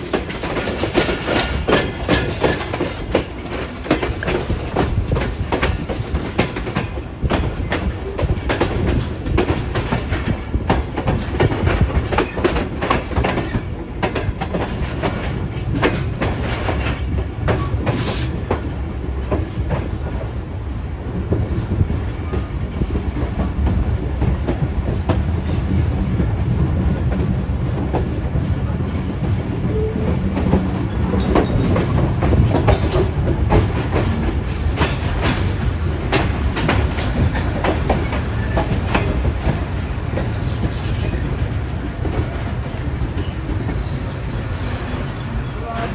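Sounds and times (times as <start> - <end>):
train rumbling: 0.0 - 45.9
wheels clattering over rails: 21.3 - 45.2.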